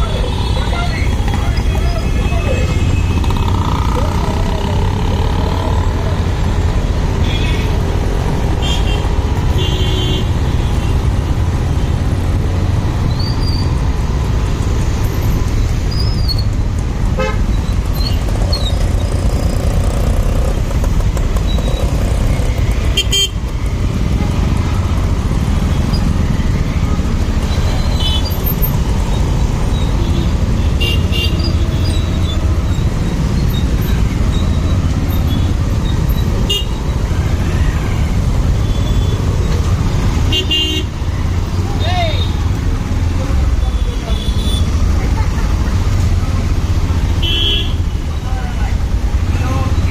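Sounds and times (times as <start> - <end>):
motorcycle engine rumble: 0.0 - 9.5, 15.0 - 30.6.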